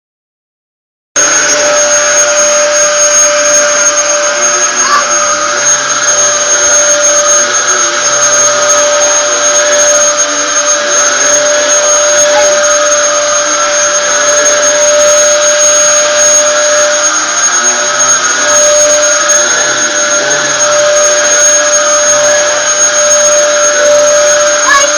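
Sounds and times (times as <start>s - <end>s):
vacuum cleaner whining: 1.2s - 24.9s.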